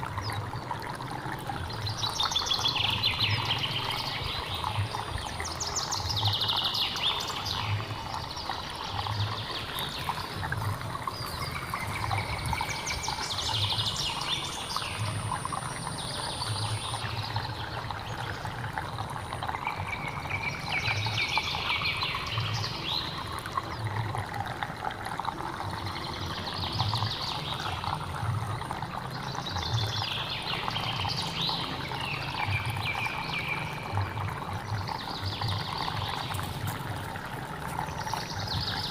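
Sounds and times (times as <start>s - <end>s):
stream flowing: 0.0s - 38.9s.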